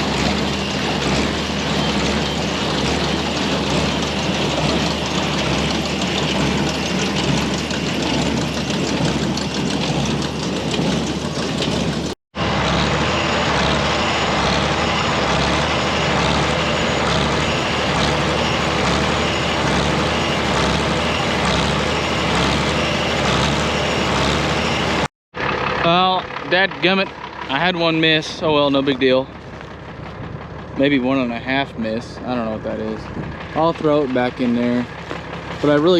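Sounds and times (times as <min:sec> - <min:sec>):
baler working: 0:00.0 - 0:35.9
tractor engine under load: 0:00.0 - 0:35.9.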